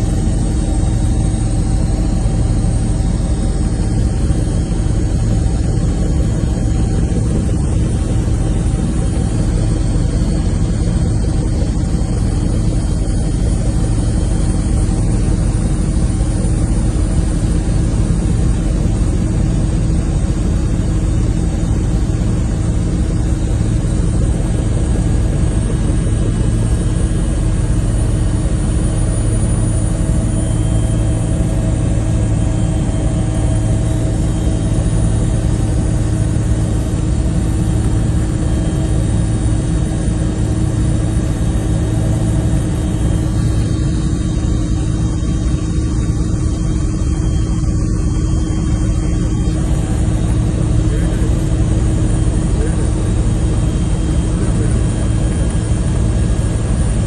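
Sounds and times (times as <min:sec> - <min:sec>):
engine humming: 0:42.0 - 0:52.9.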